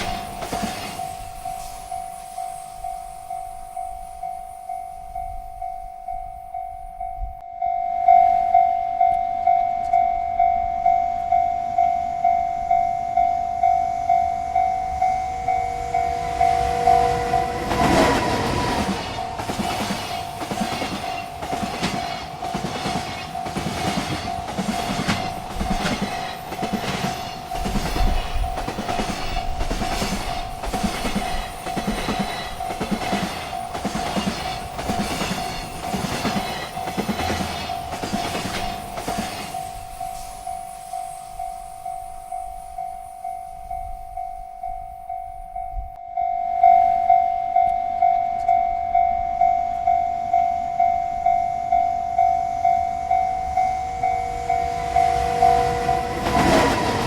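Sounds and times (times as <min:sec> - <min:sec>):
wheels clacking over rail joints: 0:00.0 - 0:01.6, 0:14.9 - 0:40.1, 0:53.6 - 0:57.0
freight train rumbling: 0:00.0 - 0:57.0
railroad crossing bell ringing: 0:00.0 - 0:57.0.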